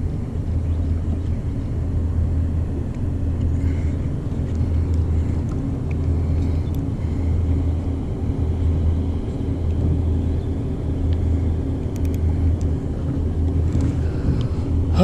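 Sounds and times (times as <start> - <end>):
boat engine idling: 0.0 - 15.0
faint clicks: 11.9 - 12.7.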